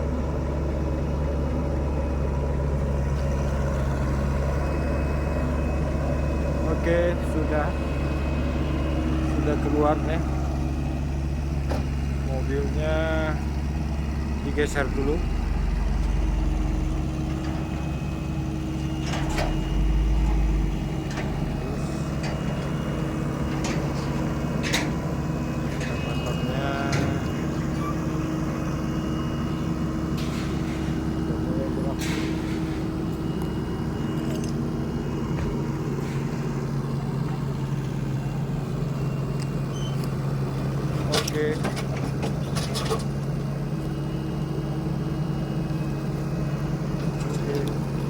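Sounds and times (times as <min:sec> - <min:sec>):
excavator diesel engine humming: 0:00.0 - 0:48.0
short sharp squeaks or clanks: 0:39.7 - 0:40.1.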